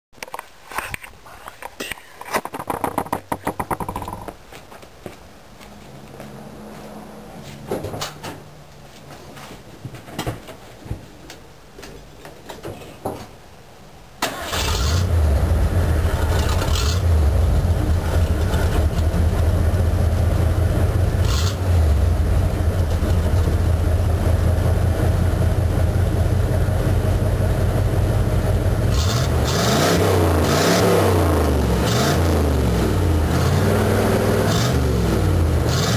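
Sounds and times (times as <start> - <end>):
knocks: 2.4 - 4.4
engine starting and running: 14.2 - 35.9.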